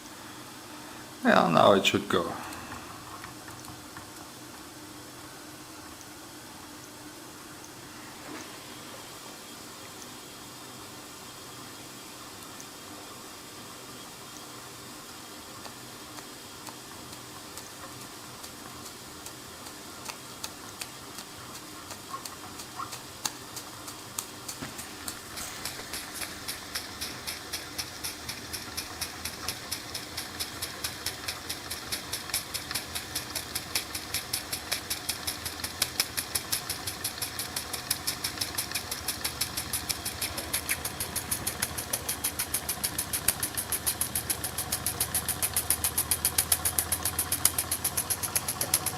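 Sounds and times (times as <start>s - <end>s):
steam engine chuffing: 24.7s - 48.9s
steam hiss: 24.7s - 48.9s.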